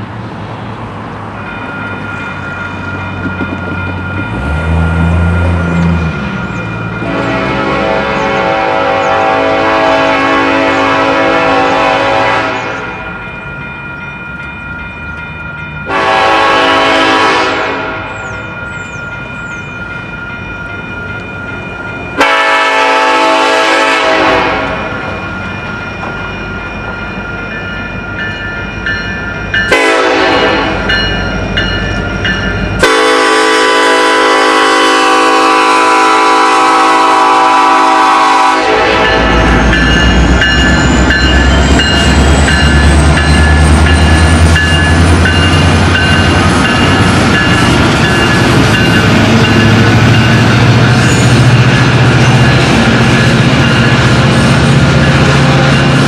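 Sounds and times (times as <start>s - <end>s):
locomotive engine rumble: 0.0s - 56.0s
locomotive air horn blasts: 7.0s - 13.0s, 15.9s - 18.2s, 22.2s - 25.1s, 29.7s - 30.9s, 32.8s - 39.6s.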